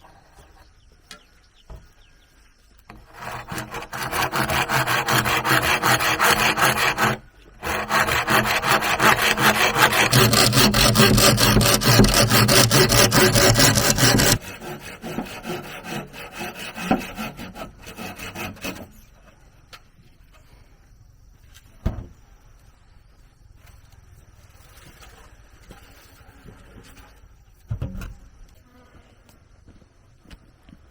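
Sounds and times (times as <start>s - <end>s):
hand saw cutting bamboo: 2.9s - 19.0s.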